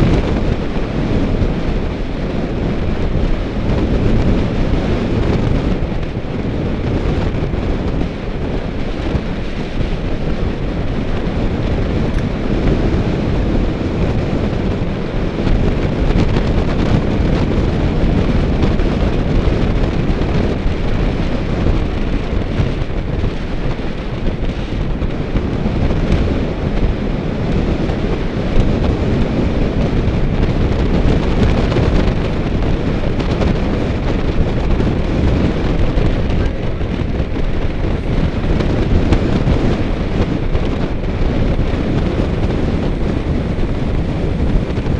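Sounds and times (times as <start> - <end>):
bicycle road noise: 0.0 - 44.9
wind buffeting microphone: 0.0 - 44.9.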